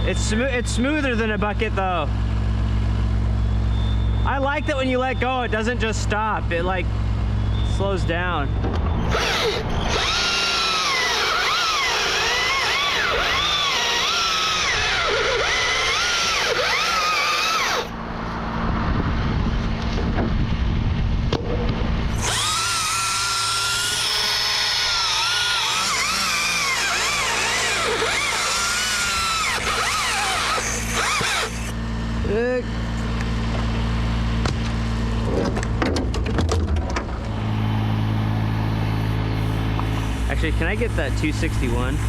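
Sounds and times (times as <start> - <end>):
steady low hum: 0.0 - 42.0
electric chainsaw cutting: 9.0 - 18.1, 22.0 - 35.2, 37.3 - 42.0.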